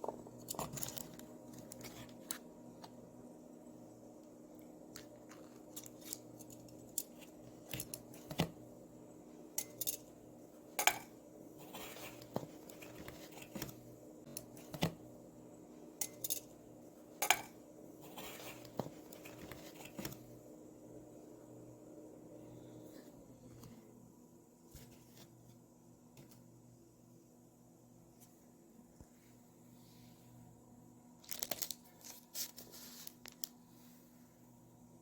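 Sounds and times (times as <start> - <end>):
steady low hum: 0.0 - 31.2.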